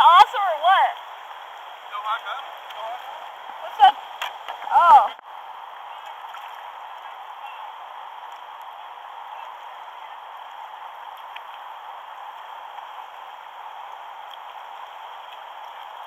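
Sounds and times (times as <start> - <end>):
river water rushing: 0.0 - 16.0
faint clicks: 10.4 - 11.6.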